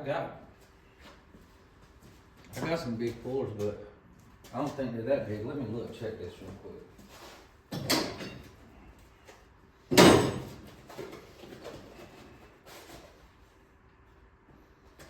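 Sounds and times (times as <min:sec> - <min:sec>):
tool drawer knocking shut: 0:09.9 - 0:10.6.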